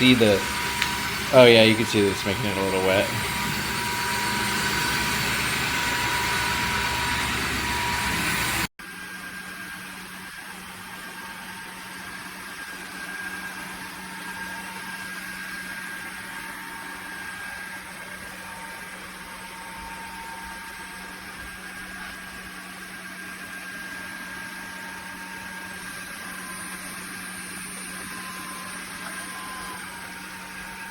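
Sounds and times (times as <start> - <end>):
steady machine hum: 0.0 - 8.7
wet-dry vacuum mop running: 0.0 - 8.7, 12.2 - 30.9.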